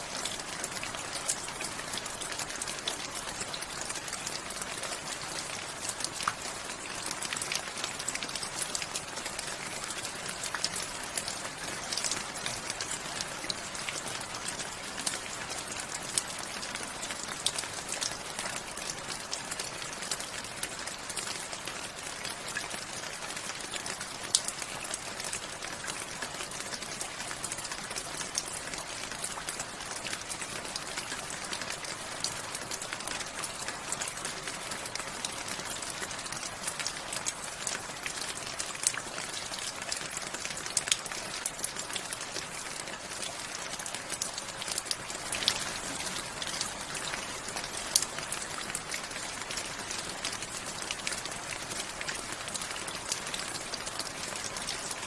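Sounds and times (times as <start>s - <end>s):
rain drops pattering: 0.0s - 55.0s.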